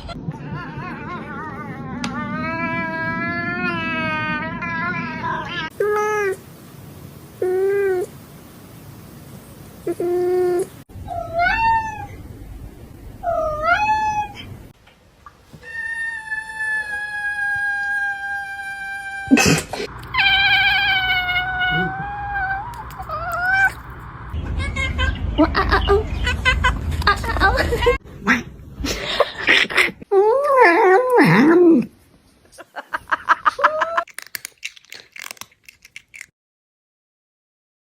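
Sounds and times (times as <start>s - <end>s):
cat meowing: 9.9s - 12.2s, 13.2s - 14.5s, 20.1s - 23.8s
cat chirping: 19.9s - 23.9s.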